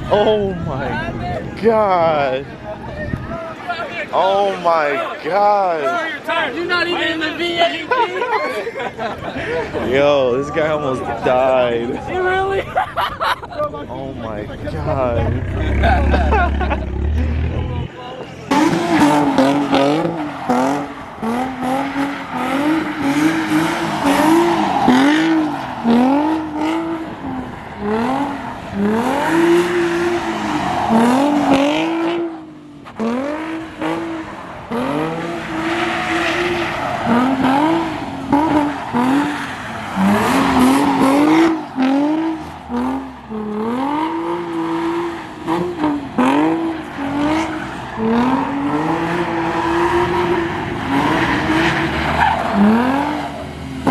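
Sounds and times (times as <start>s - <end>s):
car engine revving: 14.0s - 53.9s
tires squealing on pavement: 14.7s - 53.9s.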